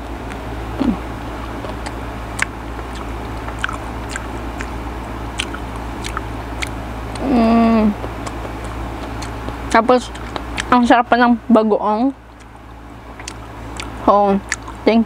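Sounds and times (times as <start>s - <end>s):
steady low hum: 0.0s - 15.0s
person humming: 0.8s - 1.0s, 7.2s - 8.0s
wet mouth clicks chewing: 1.6s - 7.3s, 8.0s - 10.8s, 12.3s - 14.9s.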